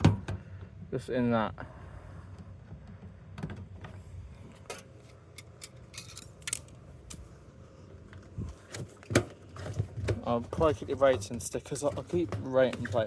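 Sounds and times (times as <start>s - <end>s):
small parts clicking and tapping: 4.6s - 7.2s.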